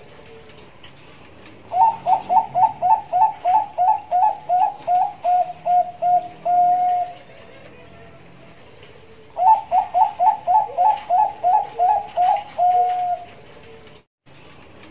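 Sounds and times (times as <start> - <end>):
dove cooing: 1.7 - 13.9.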